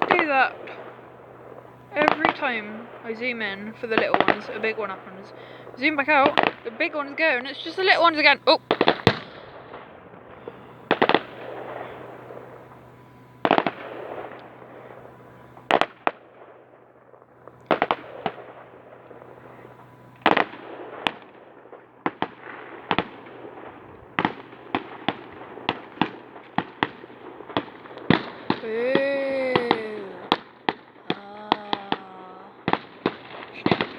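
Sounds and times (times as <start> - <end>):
fireworks bursting with bangs: 0.0 - 33.9
rumbling echo: 0.0 - 33.9.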